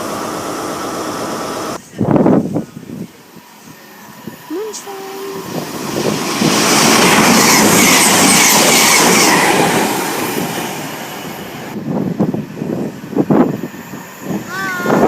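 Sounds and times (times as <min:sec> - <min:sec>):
train passing at speed: 0:00.0 - 0:15.0
high wheel squeal: 0:06.7 - 0:10.0.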